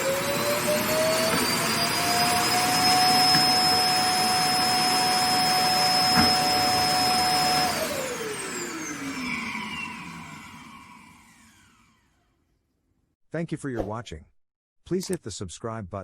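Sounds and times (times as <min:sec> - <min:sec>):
suction motor whine: 0:00.0 - 0:12.4.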